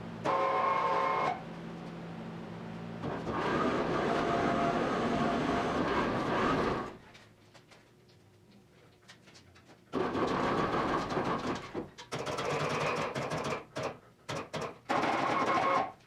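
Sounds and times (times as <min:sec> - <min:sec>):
motor humming and whining: 0:03.0 - 0:07.0.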